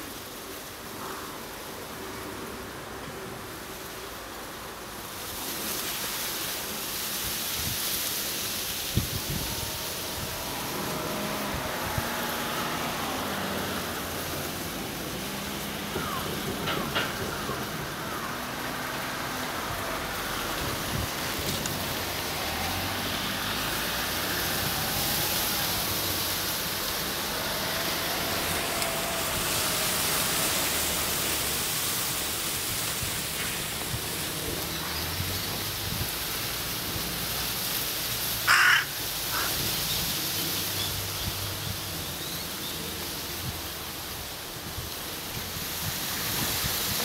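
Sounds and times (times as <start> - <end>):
outdoor background noise: 0.0 - 47.0
harsh bird call: 38.5 - 39.6.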